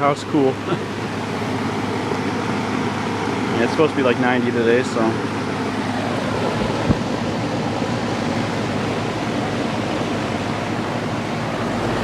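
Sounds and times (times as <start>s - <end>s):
condenser fan air rush: 0.0s - 12.0s
low compressor hum: 5.2s - 12.0s.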